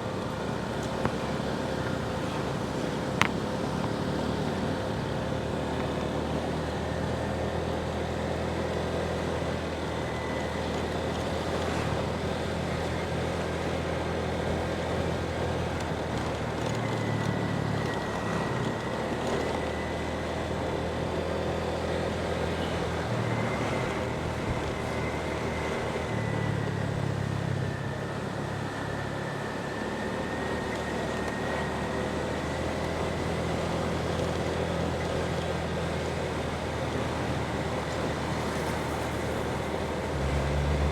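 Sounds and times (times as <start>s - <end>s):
wind and road noise: 0.0s - 40.9s.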